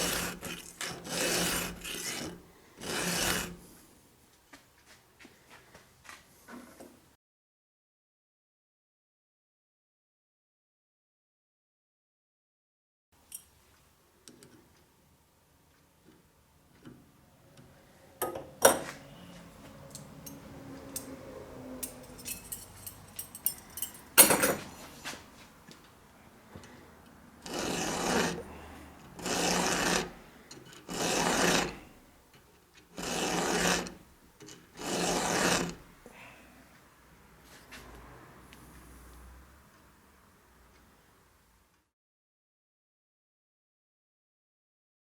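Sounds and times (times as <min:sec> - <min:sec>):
file rasping on chainsaw chain: 0:00.0 - 0:03.7, 0:27.4 - 0:32.0, 0:32.9 - 0:35.9.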